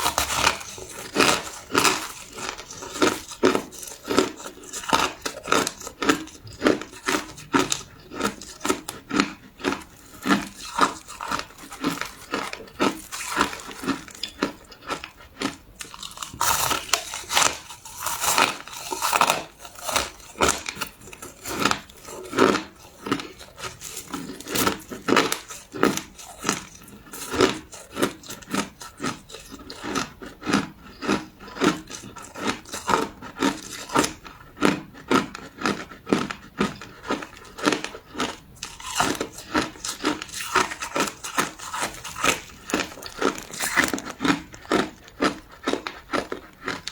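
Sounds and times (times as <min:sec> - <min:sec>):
crushed ice being chewed: 0:00.0 - 0:46.9.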